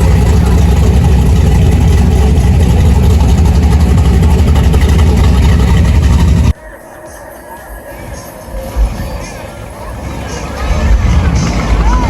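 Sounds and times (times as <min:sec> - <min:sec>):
car engine idling: 0:00.0 - 0:06.6.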